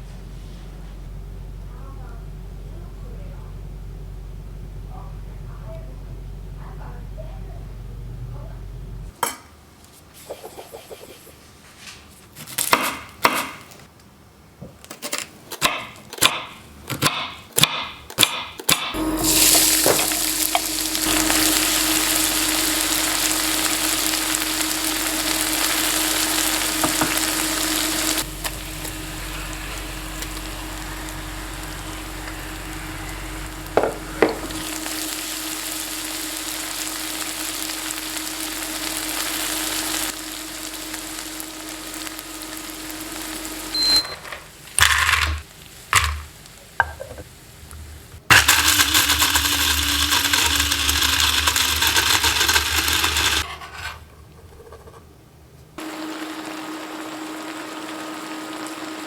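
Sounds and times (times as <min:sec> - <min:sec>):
food sizzling in hot oil: 0:19.0 - 0:53.8, 0:55.8 - 0:59.0.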